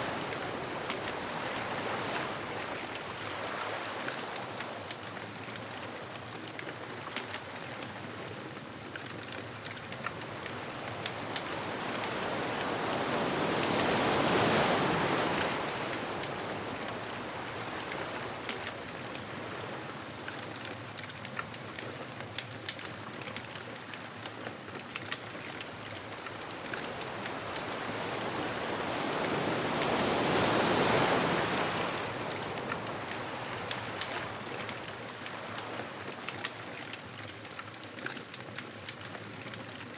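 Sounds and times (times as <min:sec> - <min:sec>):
bonfire crackling: 0:00.0 - 0:29.5
ocean waves washing onto beach: 0:00.0 - 0:39.9.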